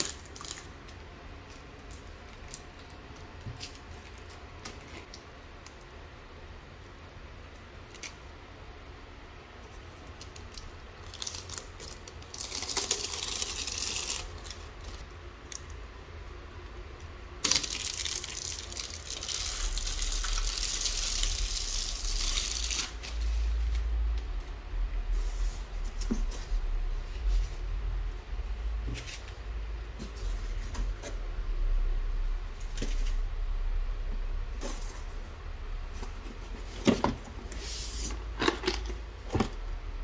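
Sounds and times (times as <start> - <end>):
packaging rustling and tearing: 10.3 - 15.0.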